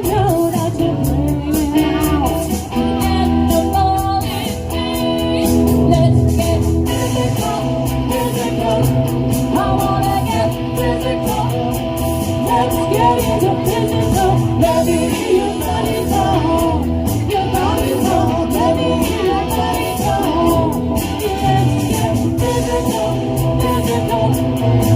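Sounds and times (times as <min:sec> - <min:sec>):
drums: 0:00.0 - 0:24.9
electric guitar: 0:00.0 - 0:24.9
woman singing: 0:00.0 - 0:24.9.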